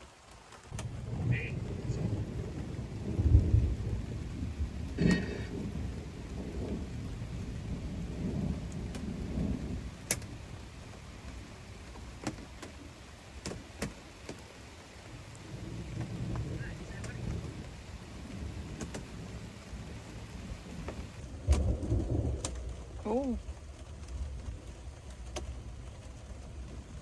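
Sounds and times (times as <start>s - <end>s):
rain on a trailer roof: 0.0s - 27.0s
thunder rumbling: 0.6s - 27.0s
heavy drips tapping: 0.7s - 21.2s.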